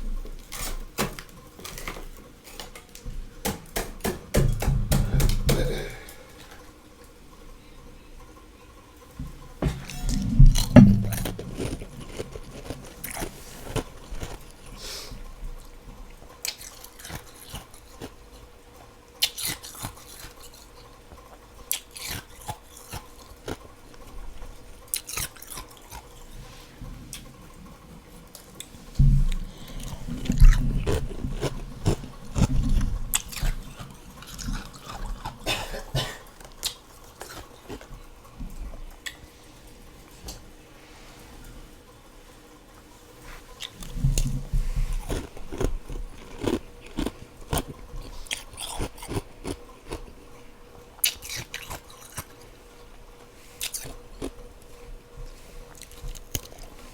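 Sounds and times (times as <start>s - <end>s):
chewing crunchy frost: 9.6s - 39.3s, 43.5s - 56.9s.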